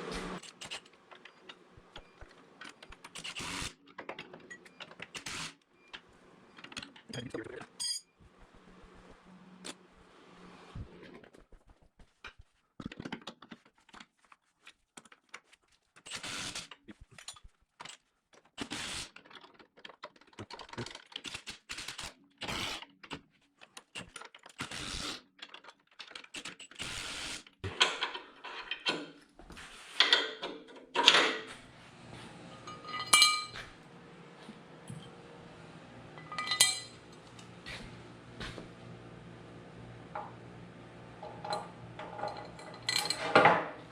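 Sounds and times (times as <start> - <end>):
ringing metal clinks: 7.8 - 8.1, 32.6 - 33.6, 36.2 - 37.0
clicks and knocks of metal parts: 16.9 - 22.1, 23.0 - 24.8, 25.4 - 26.8, 27.7 - 29.3, 30.0 - 31.5, 32.5 - 33.7, 36.2 - 37.6, 41.2 - 43.9
scraping and rattling: 41.1 - 43.9.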